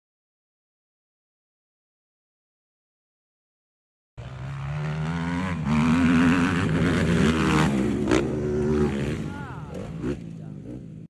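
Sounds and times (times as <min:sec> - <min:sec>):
motocross bike engine revving: 0:04.2 - 0:11.0.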